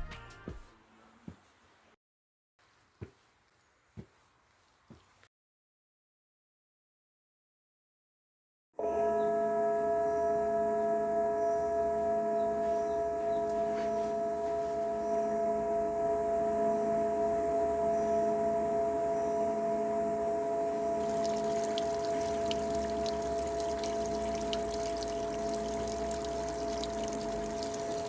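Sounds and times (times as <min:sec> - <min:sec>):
singing bowl ringing: 0:08.8 - 0:28.0.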